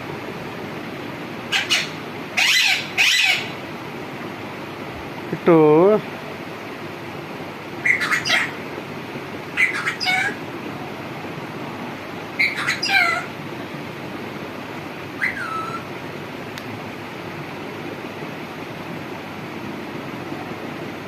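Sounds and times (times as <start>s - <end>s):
steady background hiss: 0.0s - 21.0s
animal high-pitched calls: 1.5s - 3.6s, 7.8s - 8.6s, 9.5s - 10.4s, 12.4s - 13.3s, 15.2s - 15.9s.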